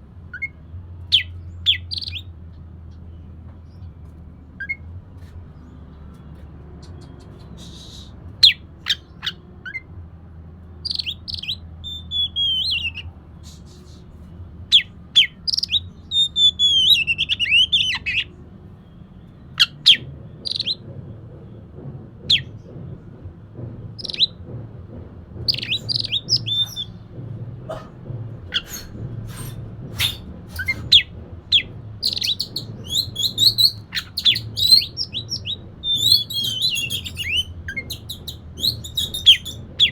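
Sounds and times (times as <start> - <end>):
sharp clicking bird notes: 6.2 - 9.3, 28.5 - 39.9
bird singing whistled phrases: 6.8 - 9.0, 10.9 - 14.0, 14.7 - 18.3, 25.5 - 27.0, 28.5 - 39.9.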